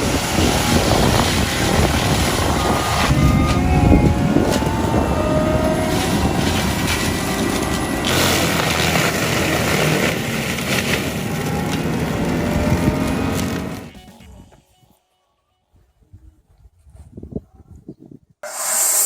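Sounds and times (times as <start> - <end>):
cutting rotor grinding: 0.0 - 14.0, 18.4 - 19.0
forestry mulcher engine running: 0.0 - 14.4.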